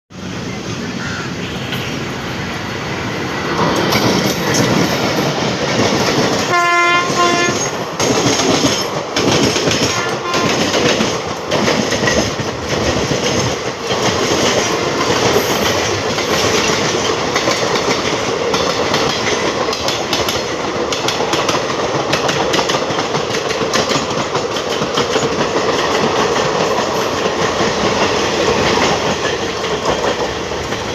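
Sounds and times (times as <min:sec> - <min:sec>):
train rumble: 0:00.1 - 0:30.9
wheels clacking over rail joints: 0:03.4 - 0:30.9
locomotive horn blast: 0:06.5 - 0:07.7, 0:09.9 - 0:10.7.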